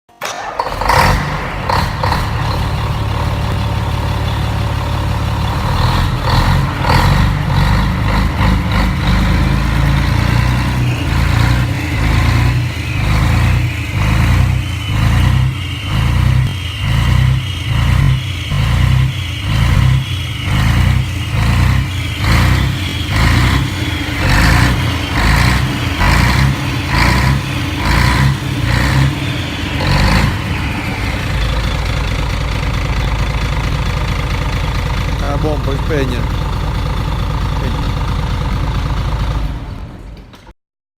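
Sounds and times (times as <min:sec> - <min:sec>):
diesel engine rumbling: 0:00.2 - 0:40.5.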